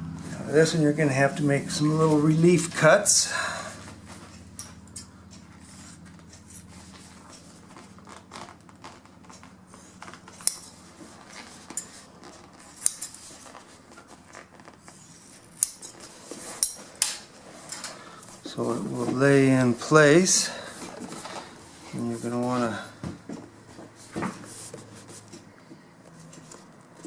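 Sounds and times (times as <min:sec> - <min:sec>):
fabric handling rustle: 0:05.4 - 0:27.0.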